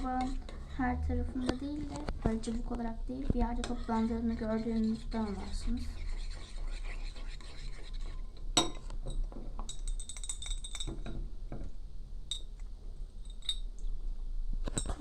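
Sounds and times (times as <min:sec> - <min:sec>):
spoon scraping and clinking bowl: 0:00.0 - 0:00.8, 0:01.4 - 0:11.1.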